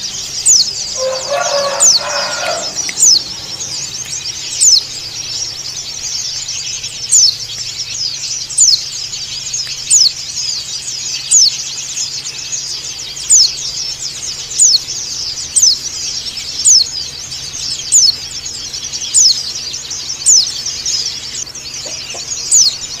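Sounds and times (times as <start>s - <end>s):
high bird twittering: 0.0s - 23.0s
bird sharp falling call: 1.0s - 3.1s.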